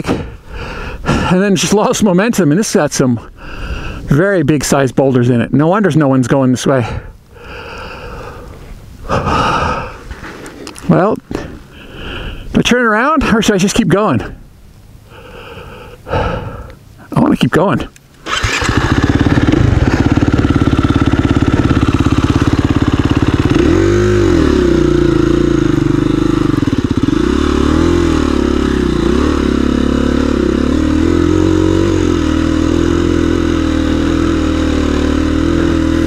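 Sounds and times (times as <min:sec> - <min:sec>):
motorcycle engine revving: 0:18.2 - 0:36.0.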